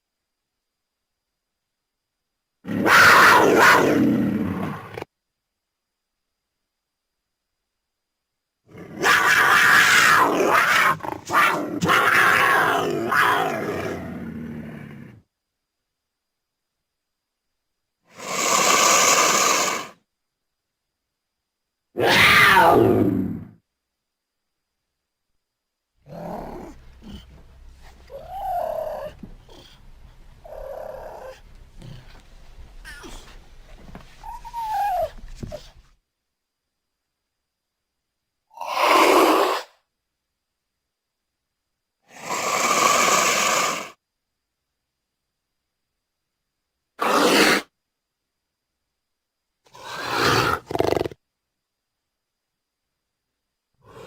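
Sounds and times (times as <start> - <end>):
big cat roaring growl: 8.7 - 15.3, 22.0 - 23.6, 26.0 - 33.4, 49.7 - 51.2
puma call rising and falling: 26.0 - 32.2.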